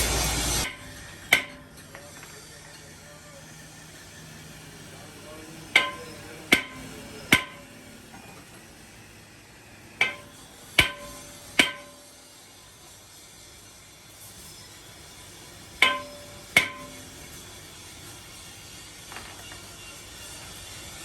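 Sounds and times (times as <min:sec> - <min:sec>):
hammer striking metal: 0:00.6 - 0:02.1, 0:05.7 - 0:08.3, 0:10.0 - 0:12.3, 0:15.7 - 0:17.4.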